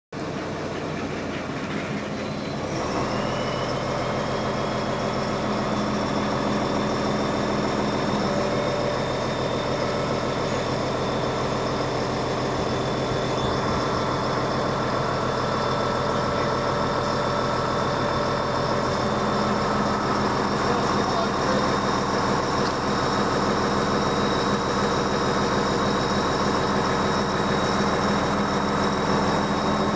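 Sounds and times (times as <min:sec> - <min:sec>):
motor running steadily: 0:00.2 - 0:29.9
whining tones: 0:01.6 - 0:29.9.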